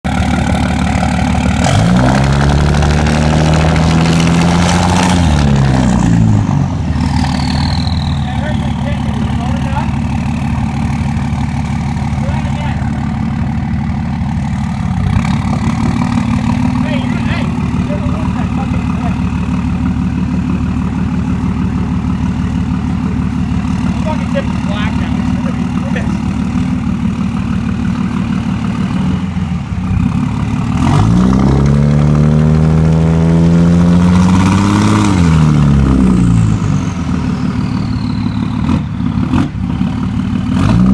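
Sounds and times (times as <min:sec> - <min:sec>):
diesel engine revving: 0:00.0 - 0:40.9
turbo whistle: 0:07.2 - 0:09.3, 0:36.7 - 0:39.0.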